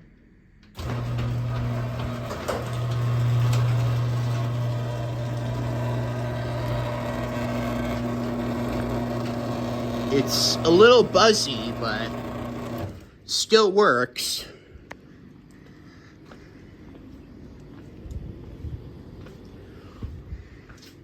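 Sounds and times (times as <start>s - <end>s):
garage door opener running: 0.7s - 13.2s
buzzy motor hum: 0.8s - 13.0s.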